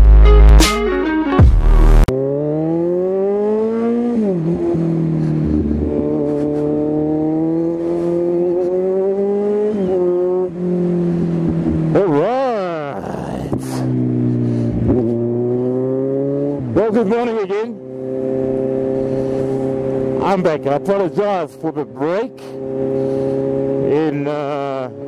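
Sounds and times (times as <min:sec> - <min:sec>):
music: 0:00.0 - 0:02.1
motorcycle engine accelerating: 0:01.4 - 0:25.0.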